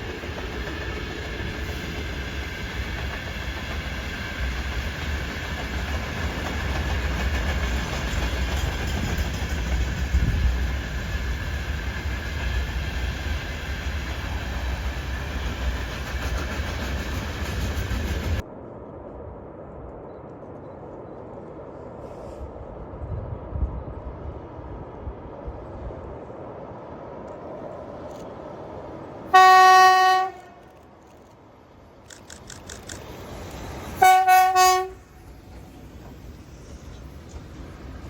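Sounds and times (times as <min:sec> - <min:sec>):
train rumble: 0:00.0 - 0:38.0
locomotive horn blasts: 0:29.3 - 0:30.7, 0:34.0 - 0:35.1.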